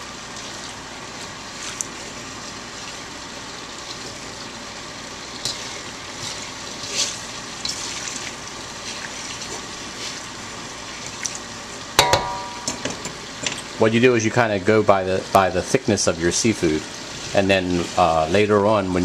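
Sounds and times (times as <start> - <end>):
seafood sizzling in oil: 0.0 - 19.0
metallic clank: 12.0 - 13.6.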